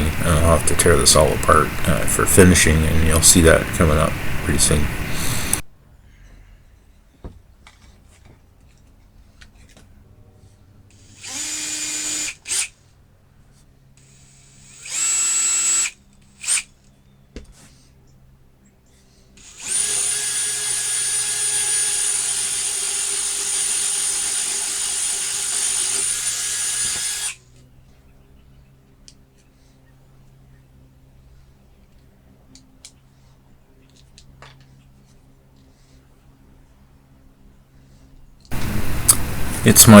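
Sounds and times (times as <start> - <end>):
cordless drill running: 3.8 - 5.6, 10.9 - 12.8, 14.0 - 16.7, 19.4 - 27.4.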